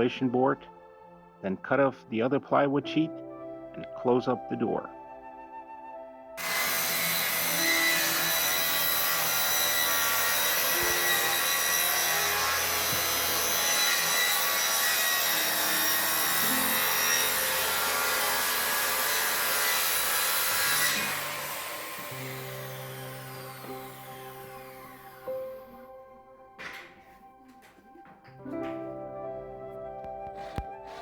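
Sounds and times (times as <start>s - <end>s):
power saw cutting plywood: 6.4s - 26.0s, 30.0s - 31.0s.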